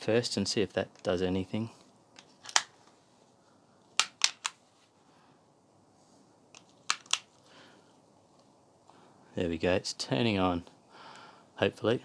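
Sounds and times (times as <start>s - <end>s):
remote buttons clicking: 6.6s - 7.3s.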